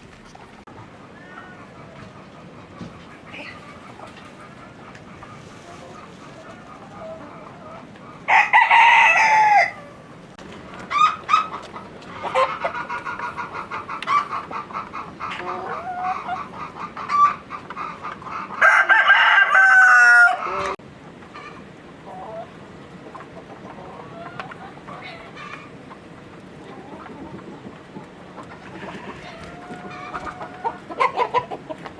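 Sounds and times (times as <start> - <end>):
chickens clucking: 0.0 - 31.9
rooster crowing: 8.3 - 10.0, 18.6 - 20.8.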